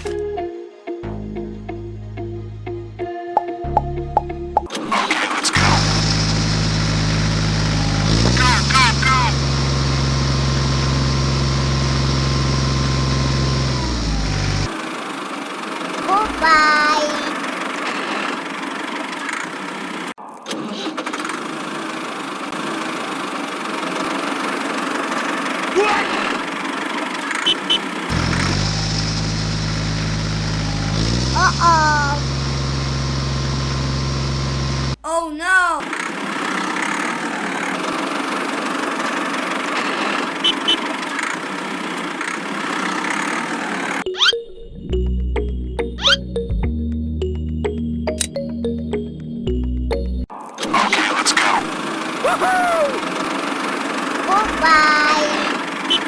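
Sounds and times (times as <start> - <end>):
small engine running: 0.0 - 0.2, 5.6 - 16.0, 21.2 - 31.4, 32.2 - 35.0, 35.9 - 44.0, 51.7 - 52.3.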